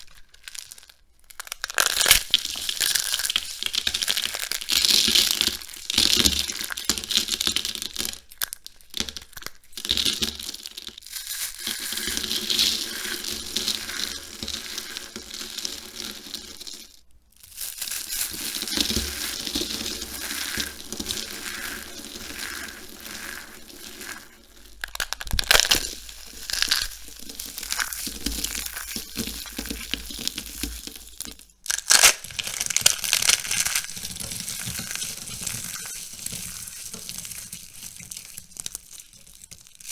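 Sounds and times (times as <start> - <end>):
soap being crushed by hand: 0.0 - 11.7, 17.4 - 35.2.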